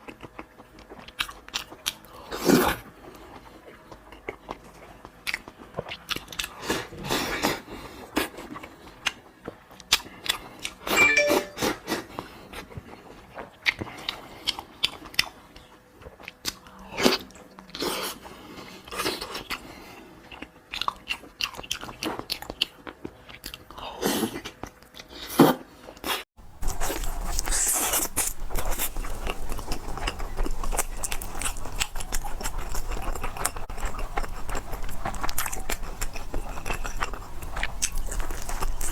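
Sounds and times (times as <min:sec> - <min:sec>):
biting and chewing crunches: 0:26.4 - 0:38.9.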